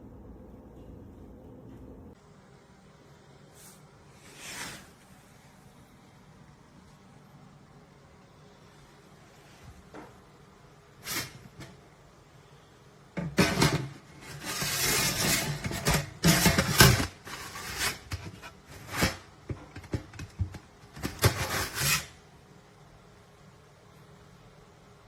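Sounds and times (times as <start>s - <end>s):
rubbing and scraping handling noises: 3.6s - 5.8s, 10.9s - 11.9s, 13.2s - 22.2s.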